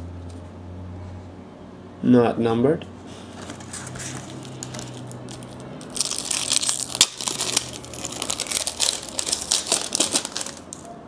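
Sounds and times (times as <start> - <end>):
foil wrapper tearing and crinkling: 3.9 - 10.9.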